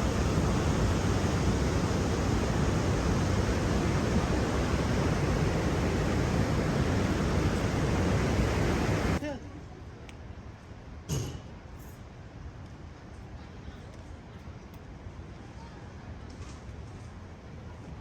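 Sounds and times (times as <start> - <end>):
steady rushing nature ambience: 0.0 - 9.6.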